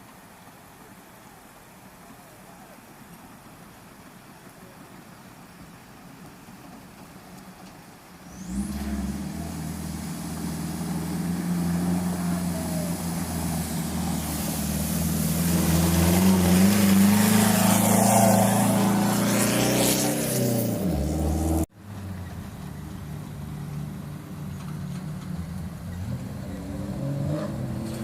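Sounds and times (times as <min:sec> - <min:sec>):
hiss: 0:08.2 - 0:21.0
race vehicle engine: 0:08.2 - 0:28.0.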